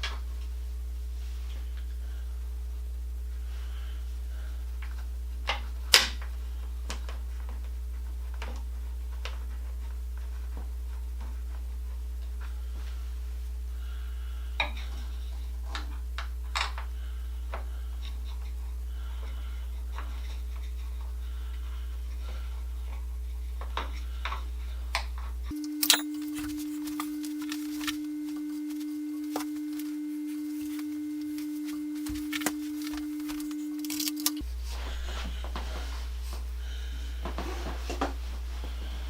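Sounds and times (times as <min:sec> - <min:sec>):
steady low hum: 0:00.0 - 0:39.0
small parts and tools clicking: 0:25.5 - 0:28.0, 0:31.4 - 0:34.4.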